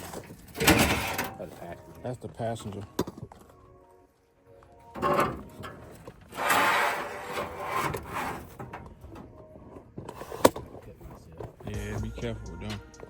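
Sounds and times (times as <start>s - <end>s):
sheet metal scraping: 5.0s - 9.2s.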